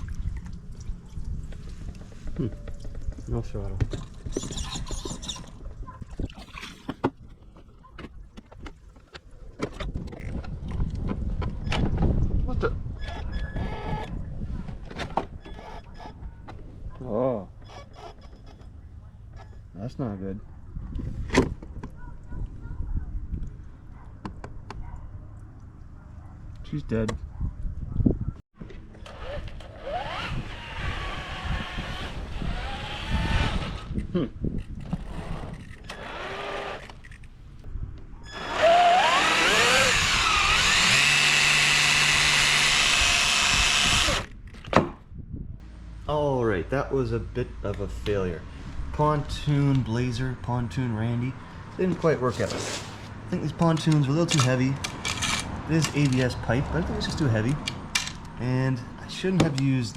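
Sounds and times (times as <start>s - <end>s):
water splashing and lapping: 0.0s - 10.6s
wind on microphone: 9.6s - 17.0s, 20.6s - 24.1s, 27.1s - 28.4s, 29.2s - 35.8s, 37.6s - 41.2s, 42.2s - 45.6s.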